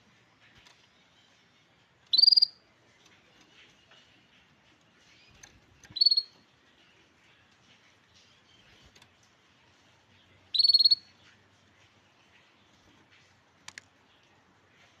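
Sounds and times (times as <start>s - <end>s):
faint bird chirps: 0.8s - 2.7s, 5.0s - 9.0s, 10.1s - 11.4s
canary calling: 2.1s - 2.7s, 5.1s - 6.5s, 10.5s - 11.3s.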